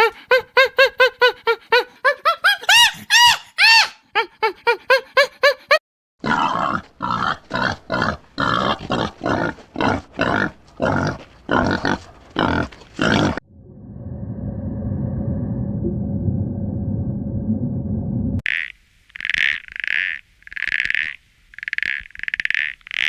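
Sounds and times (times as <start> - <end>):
harsh animal grunts: 6.2 - 13.4
low steady rumble: 13.4 - 18.4.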